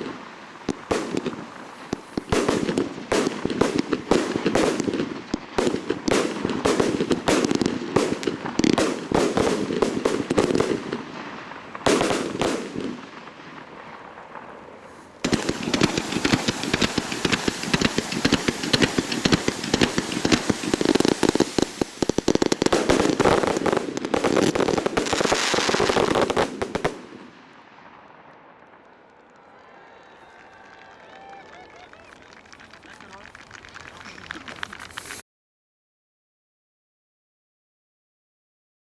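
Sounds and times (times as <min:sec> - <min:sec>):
fireworks bangs and crackling: 0:00.0 - 0:29.8.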